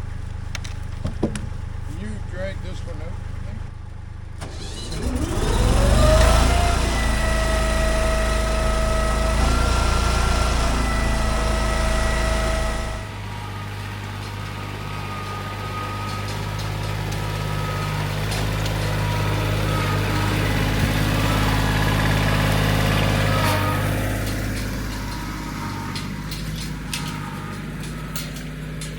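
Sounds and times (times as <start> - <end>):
engine running: 0.0 - 28.9.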